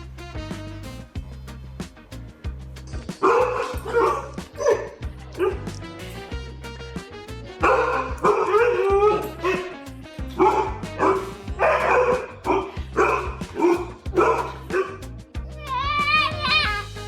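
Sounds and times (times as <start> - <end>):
background music with bass line: 0.0 - 17.0
dog barking and yipping: 3.2 - 6.3, 7.6 - 15.0.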